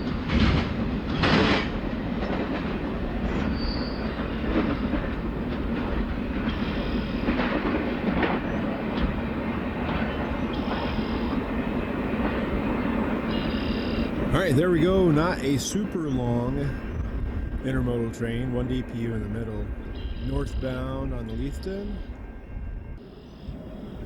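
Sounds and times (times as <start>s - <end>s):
rhythmic clicks over rail joints: 0.0s - 24.0s
train wheels rumbling on rail: 0.0s - 24.0s
high wheel squeals: 10.5s - 11.4s, 13.3s - 14.2s.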